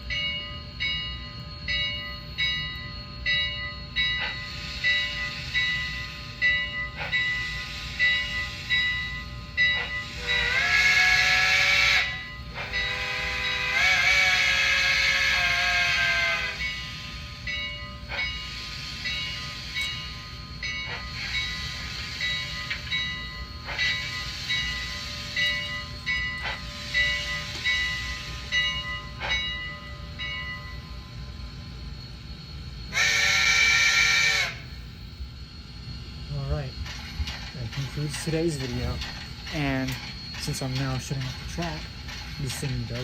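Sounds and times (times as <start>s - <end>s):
steam locomotive chime whistle: 0.0s - 43.0s
clanks: 36.8s - 43.0s.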